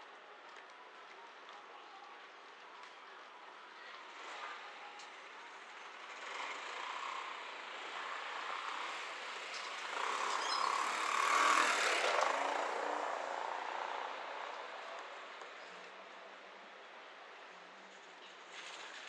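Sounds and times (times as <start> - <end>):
vehicle passing by: 6.1 - 15.9.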